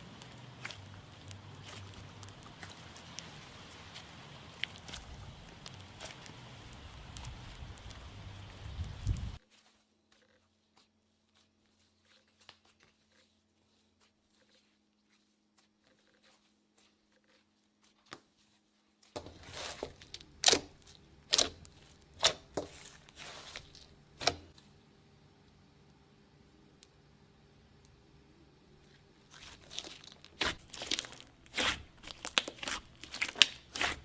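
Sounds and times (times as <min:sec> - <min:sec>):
slime squeezed crackling and popping: 0:00.0 - 0:08.0, 0:19.4 - 0:24.6, 0:29.3 - 0:34.0
low steady hum: 0:00.0 - 0:17.7, 0:18.3 - 0:34.0.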